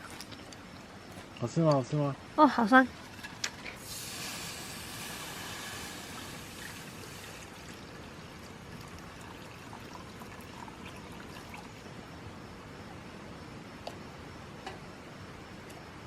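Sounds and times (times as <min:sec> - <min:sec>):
liquid pouring: 0:03.8 - 0:11.9.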